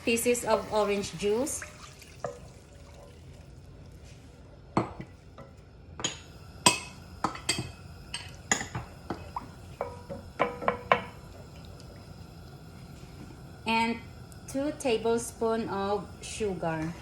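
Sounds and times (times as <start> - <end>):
utensils clinking on cookware: 4.8 - 11.2.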